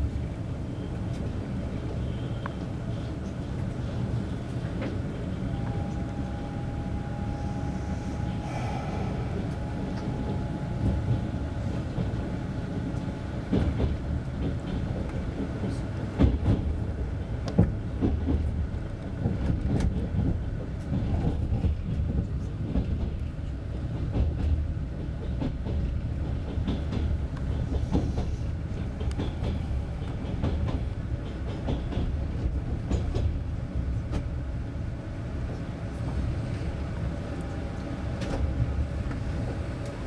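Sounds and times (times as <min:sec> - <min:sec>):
train rumbling inside carriage: 0:00.0 - 0:40.0
wheels clacking over rail joints: 0:09.8 - 0:34.3.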